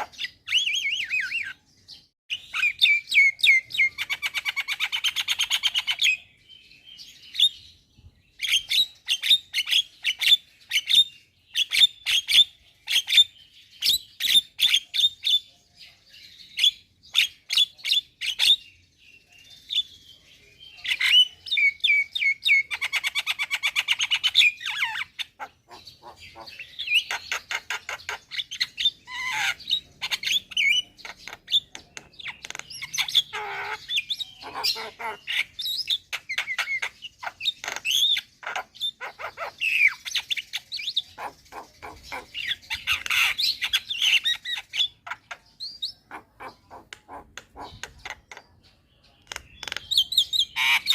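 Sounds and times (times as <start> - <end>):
bird harsh squawks: 0.0 - 1.6, 20.9 - 31.7, 32.3 - 48.2, 49.6 - 50.9
bird singing varied song: 0.0 - 50.9.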